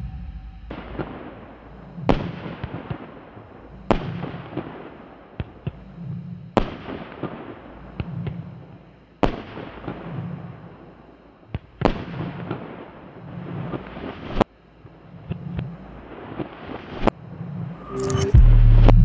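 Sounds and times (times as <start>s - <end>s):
small fireworks pops: 3.9s - 5.8s, 11.5s - 12.8s.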